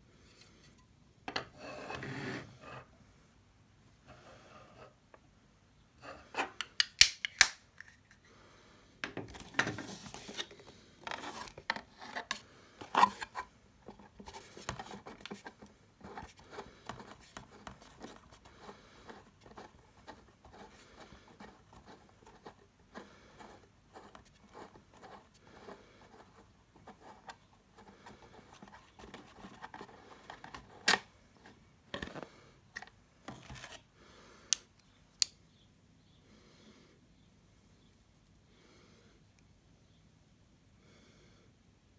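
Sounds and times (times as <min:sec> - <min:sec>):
plastic snaps: 0:06.6 - 0:07.9
plastic clicks: 0:06.6 - 0:08.0.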